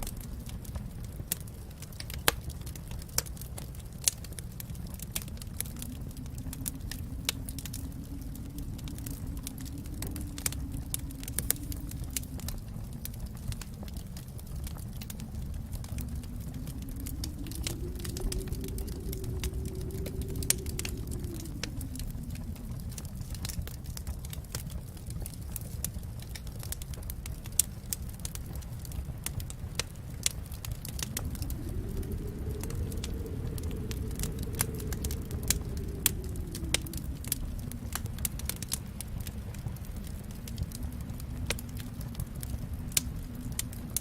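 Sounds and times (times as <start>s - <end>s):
fire crackling and popping: 0.0s - 44.0s
low rumble of flame: 0.0s - 44.0s.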